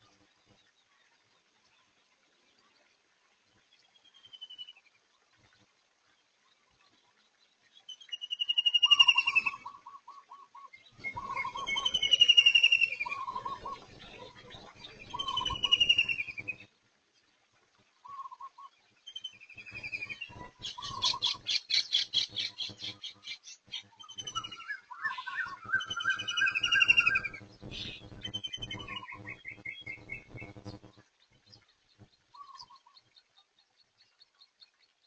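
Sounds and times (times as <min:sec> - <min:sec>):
birds whistling calls: 0:11.0 - 0:13.8, 0:15.1 - 0:16.6, 0:19.1 - 0:30.7.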